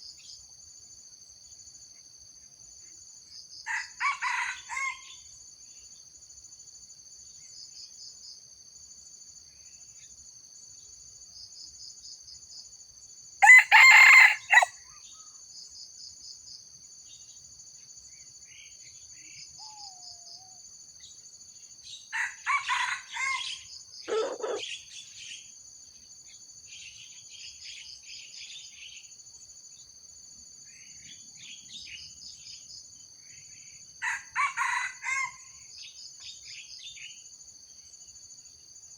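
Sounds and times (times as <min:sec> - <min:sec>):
rooster crowing: 0:03.7 - 0:05.1, 0:13.4 - 0:14.8, 0:22.1 - 0:24.6, 0:34.0 - 0:35.5.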